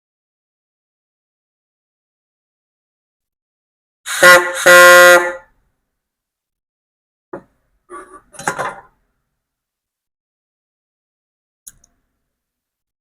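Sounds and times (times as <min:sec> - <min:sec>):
horn honking: 0:04.1 - 0:05.5
click: 0:11.6 - 0:12.0.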